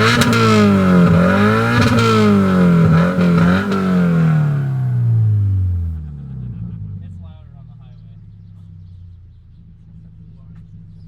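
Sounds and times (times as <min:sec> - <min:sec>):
car engine revving: 0:00.0 - 0:06.6.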